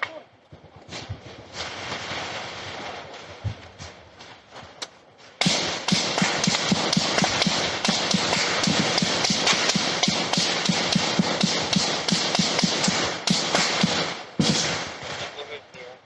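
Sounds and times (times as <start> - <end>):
rapid running footsteps: 3.2 - 4.8.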